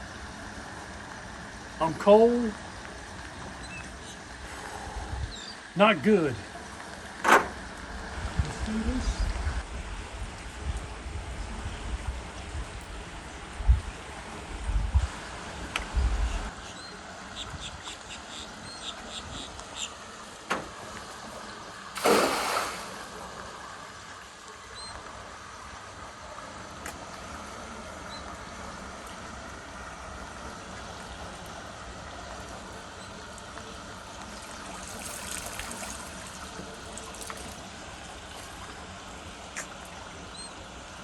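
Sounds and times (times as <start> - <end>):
water trickling: 20.0 - 24.2, 30.6 - 41.0
net splashing onto water: 22.0 - 23.4.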